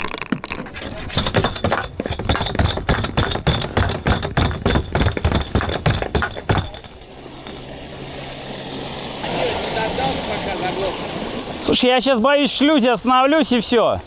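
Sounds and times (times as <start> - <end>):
plastic fuel canister knocking: 0.7 - 7.0.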